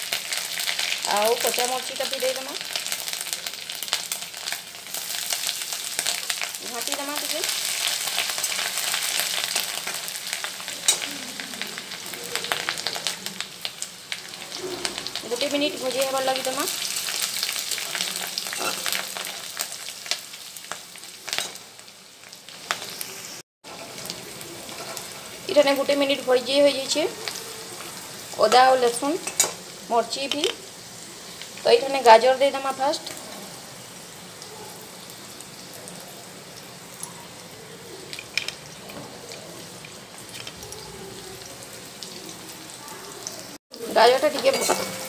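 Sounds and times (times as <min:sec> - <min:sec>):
food sizzling in hot oil: 0:00.0 - 0:45.0
metal spatula scraping pan: 0:17.8 - 0:19.1, 0:44.3 - 0:45.0.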